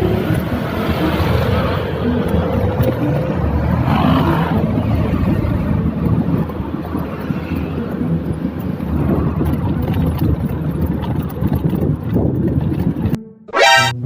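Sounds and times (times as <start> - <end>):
wind buffeting microphone: 0.0 - 13.2
low road rumble: 0.0 - 14.0.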